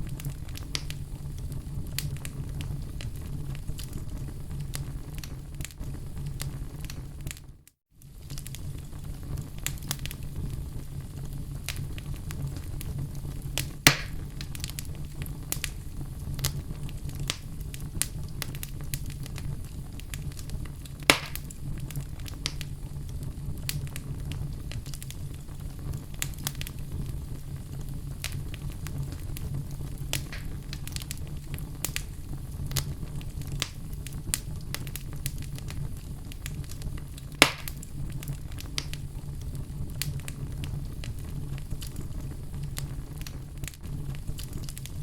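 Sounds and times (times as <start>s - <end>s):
fire crackling: 0.0s - 45.0s.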